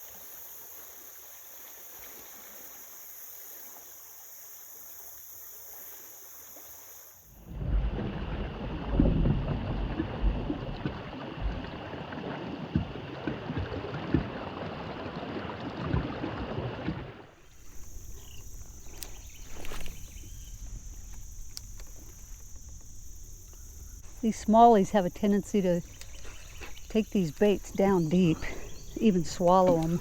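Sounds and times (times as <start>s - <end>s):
insects chirping: 0.0s - 7.6s, 17.3s - 30.0s
water rushing around a kayak: 0.0s - 30.0s
low bumps: 7.5s - 11.8s
light clicks: 21.0s - 22.9s.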